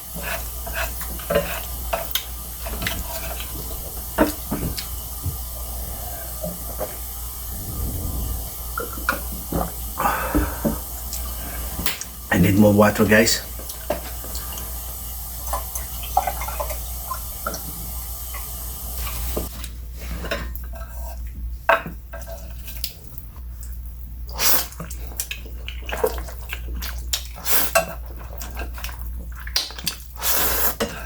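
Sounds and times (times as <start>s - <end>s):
wet chewing and slurping: 0.1s - 11.8s, 22.3s - 31.0s.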